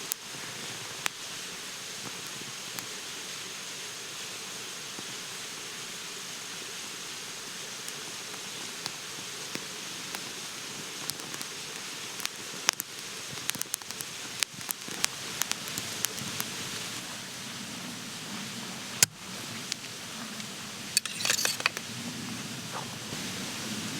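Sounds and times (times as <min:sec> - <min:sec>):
outdoor hiss: 0:00.0 - 0:23.9
sharp clicks and snaps: 0:12.2 - 0:16.9.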